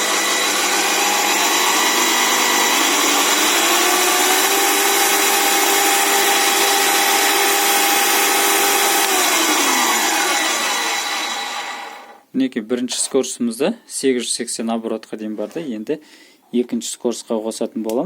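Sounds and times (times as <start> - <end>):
drill press motor whine: 0.0 - 12.2.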